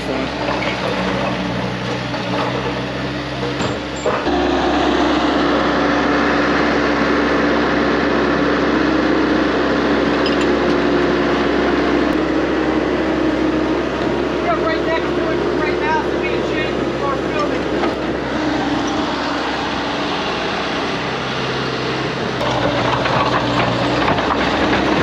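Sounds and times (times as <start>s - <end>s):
skid loader engine running: 0.0s - 25.0s.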